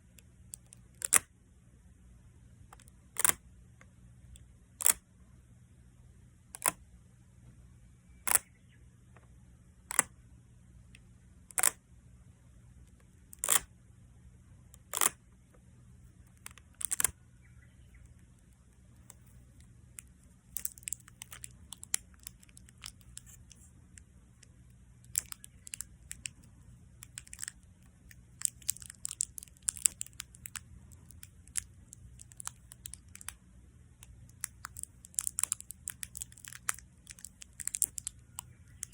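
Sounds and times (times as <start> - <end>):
adhesive tape peeling: 13.4 - 13.7, 14.8 - 15.2, 16.3 - 17.1, 20.0 - 23.7, 25.0 - 33.3, 34.3 - 38.9
sticky crackles and pops: 16.3 - 17.1, 19.0 - 23.7, 24.4 - 33.4, 34.0 - 38.9.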